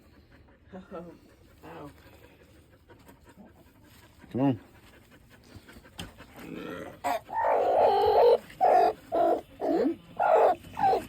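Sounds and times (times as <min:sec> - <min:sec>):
hen clucking: 0:07.0 - 0:11.0.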